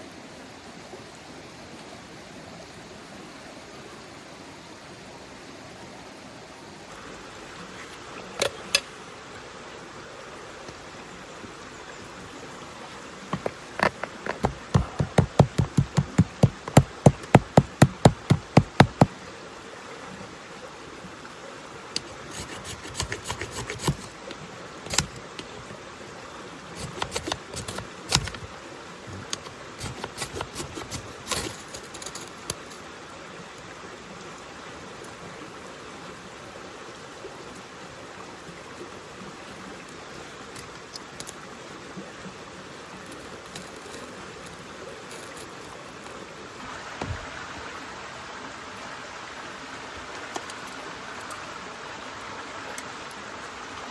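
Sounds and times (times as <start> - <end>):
steady background hiss: 0.0 - 53.9
hard knocks: 13.4 - 19.1
light clicks and cracks: 29.2 - 32.8, 43.0 - 46.2.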